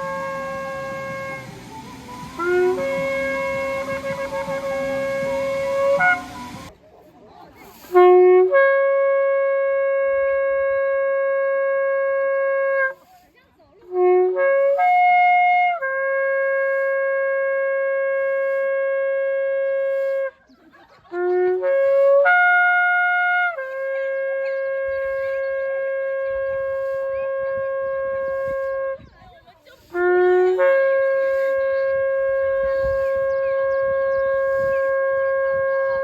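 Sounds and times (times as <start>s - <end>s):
shofar blasts: 0.0s - 6.7s, 13.9s - 20.3s, 21.4s - 29.0s, 29.9s - 36.0s.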